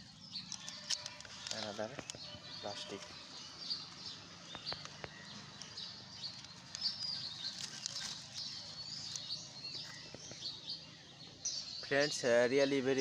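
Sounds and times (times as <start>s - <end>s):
small birds chirping: 0.0s - 13.0s
sharp clicks: 0.4s - 2.2s
light rustling: 3.9s - 10.5s.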